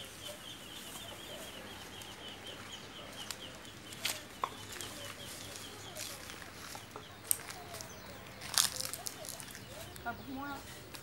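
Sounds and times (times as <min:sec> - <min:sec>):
small bird chirping: 0:00.0 - 0:10.9.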